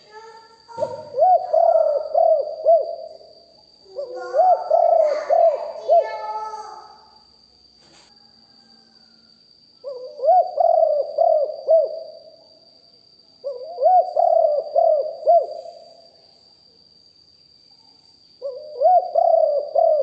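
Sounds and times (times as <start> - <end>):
dove cooing: 0.7 - 6.7, 9.8 - 12.3, 13.4 - 16.0, 18.4 - 20.0.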